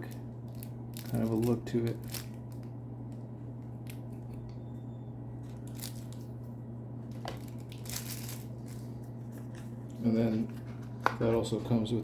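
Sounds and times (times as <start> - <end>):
packaging rustling: 0.0 - 2.7, 5.5 - 6.3, 7.1 - 11.4
steady low hum: 0.0 - 12.0.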